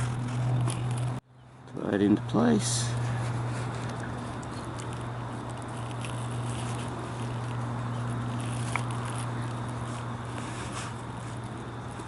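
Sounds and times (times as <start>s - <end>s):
steady low hum: 0.0s - 12.0s
small ticks: 3.7s - 12.0s.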